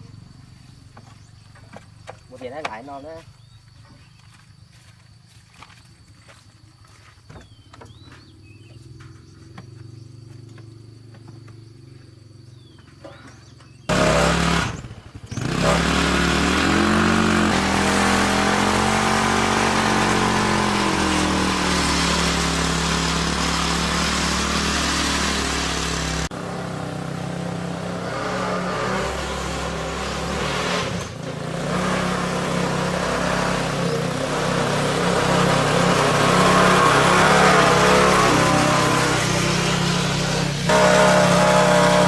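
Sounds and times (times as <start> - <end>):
vehicle engine running: 7.9 - 42.0.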